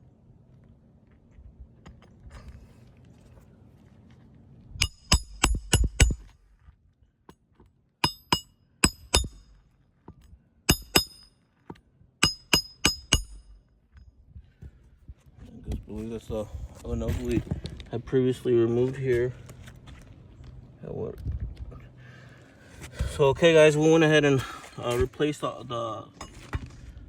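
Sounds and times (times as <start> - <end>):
hammer striking roofing nails: 8.0 - 9.5, 12.2 - 13.5.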